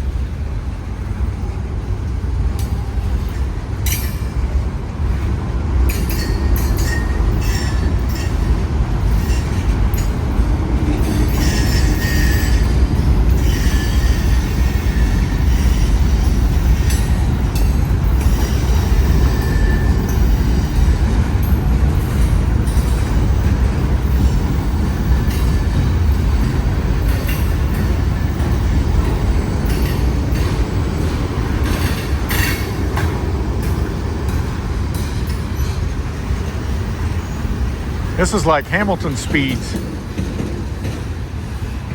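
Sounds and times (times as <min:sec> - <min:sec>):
freight train rumbling: 0:00.0 - 0:41.9
high wheel squeals: 0:11.1 - 0:16.8.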